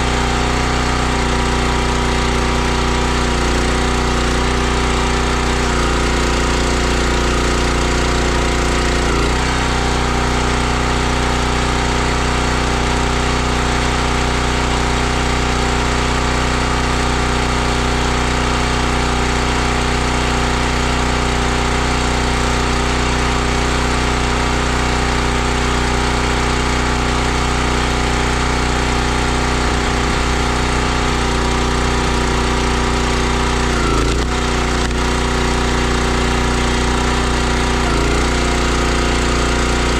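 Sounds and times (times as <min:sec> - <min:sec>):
log splitter gas engine running: 0:00.0 - 0:39.9.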